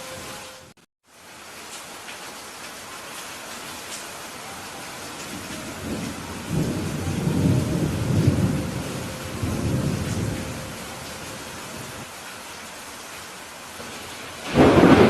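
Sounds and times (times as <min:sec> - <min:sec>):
rain hiss: 0:00.0 - 0:15.0
thunder rumble: 0:05.2 - 0:12.1, 0:13.9 - 0:15.0.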